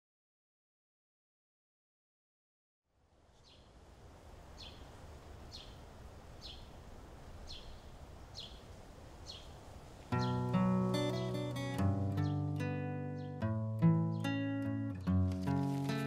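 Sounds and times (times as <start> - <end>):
low outdoor hum: 2.9 - 12.3
bird chirping: 3.3 - 3.8, 4.5 - 14.8
guitar music: 10.1 - 16.0.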